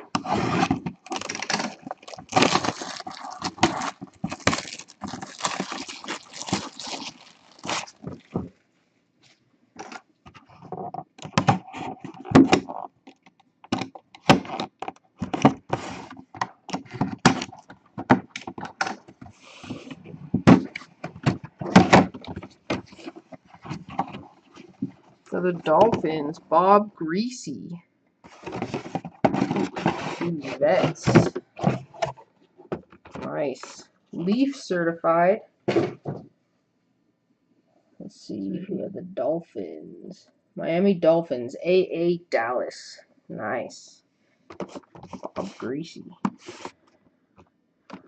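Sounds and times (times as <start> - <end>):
plastic wrap crinkling and tearing: 0.1 - 8.5.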